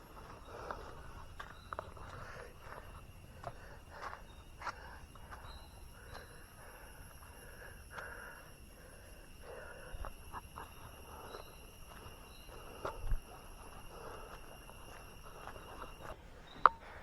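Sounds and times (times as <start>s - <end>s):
high-pitched insect calls: 0.0s - 17.0s.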